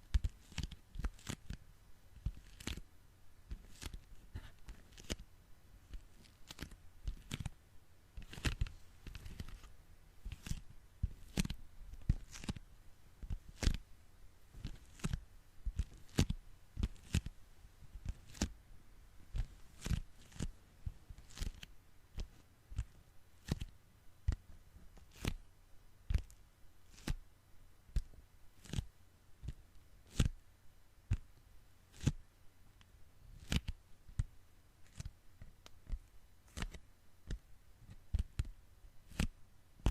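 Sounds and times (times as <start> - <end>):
sticky hands crackling peel: 0.2 - 1.6, 2.2 - 2.8, 3.5 - 5.2, 5.9 - 7.5, 8.2 - 12.6, 14.6 - 15.2, 18.0 - 18.5, 19.4 - 20.5, 21.1 - 23.7, 25.0 - 25.4, 39.1 - 39.9.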